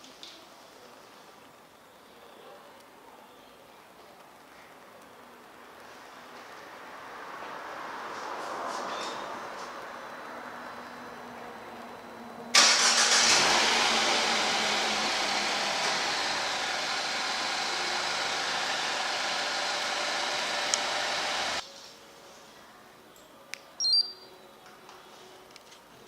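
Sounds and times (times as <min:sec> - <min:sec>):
car engine starting and running: 0:12.5 - 0:21.6.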